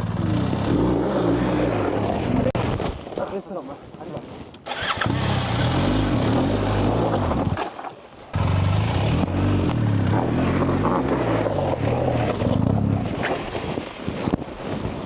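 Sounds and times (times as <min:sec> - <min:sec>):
motorcycle engine revving: 0:00.0 - 0:02.6, 0:04.7 - 0:07.6, 0:08.4 - 0:13.2.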